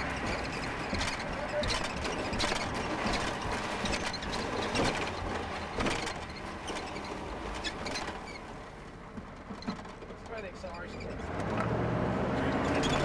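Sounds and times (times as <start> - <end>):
towed lawn mower rattling: 0.0 - 11.6, 12.5 - 13.0
road and wind noise: 0.0 - 13.0.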